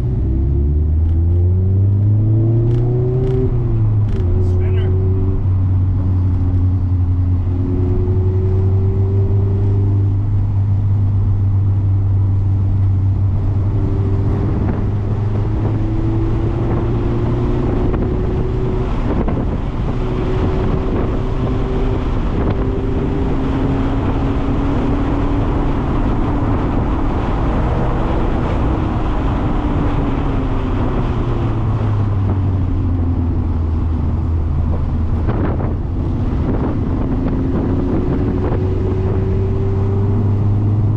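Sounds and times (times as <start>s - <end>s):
car engine at speed: 0.0s - 40.9s.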